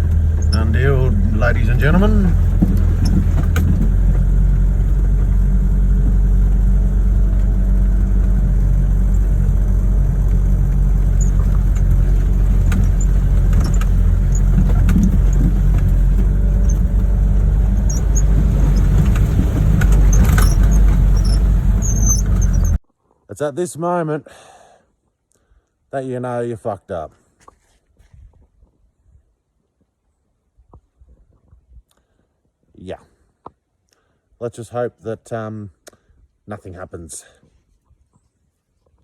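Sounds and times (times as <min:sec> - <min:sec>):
diesel engine running: 0:00.0 - 0:22.8
vehicle knocks and rattles: 0:00.0 - 0:22.8.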